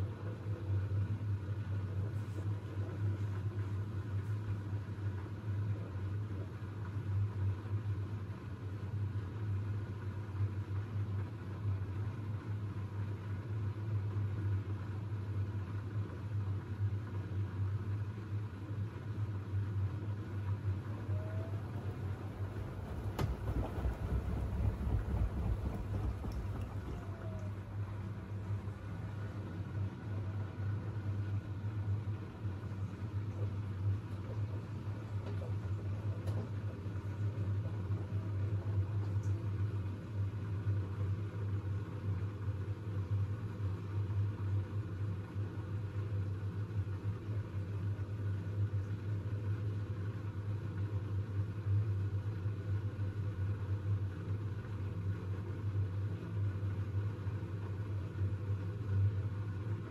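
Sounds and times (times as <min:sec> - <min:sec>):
washing machine running: 0:00.0 - 0:59.9.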